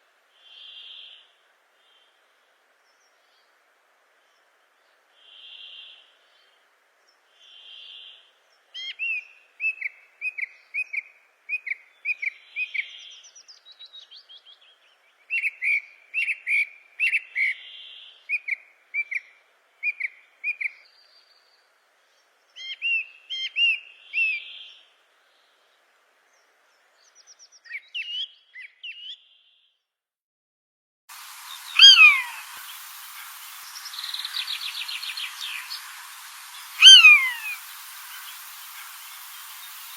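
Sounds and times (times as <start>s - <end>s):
soft fuzzy bird call: 0.0s - 3.6s, 4.2s - 25.6s, 31.1s - 39.9s
steady hiss: 0.0s - 16.1s, 31.1s - 39.9s
birds singing whistled notes: 5.2s - 25.6s, 26.3s - 29.7s, 31.3s - 39.9s.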